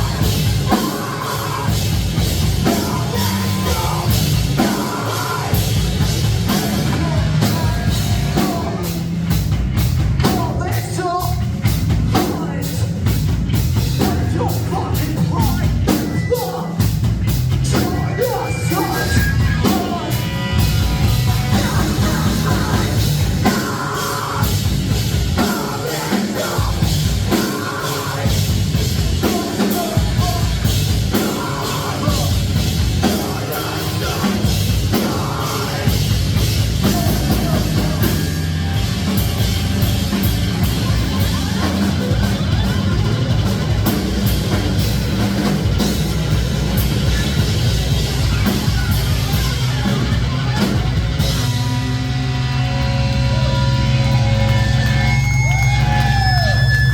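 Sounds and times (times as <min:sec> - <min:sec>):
bass guitar: 0:00.0 - 0:56.9
distorted guitars: 0:00.0 - 0:56.9
drum kit: 0:00.0 - 0:56.9
person shouting vocals: 0:02.7 - 0:05.6.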